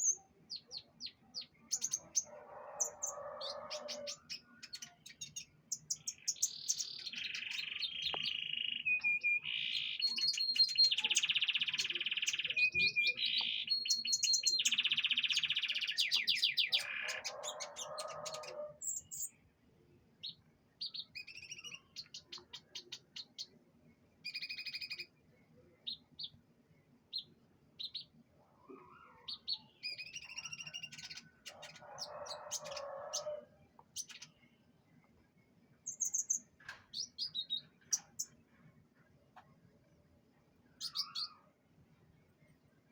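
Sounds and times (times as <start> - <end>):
canary singing: 0.0 - 19.4, 27.1 - 34.5, 40.8 - 41.5.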